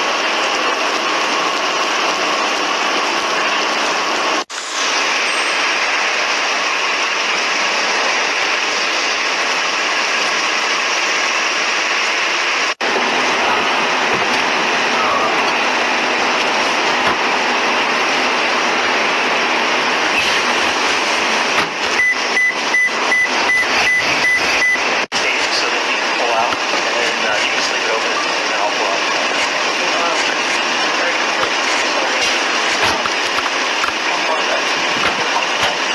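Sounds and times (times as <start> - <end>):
high electronic beeps: 21.9 - 24.9.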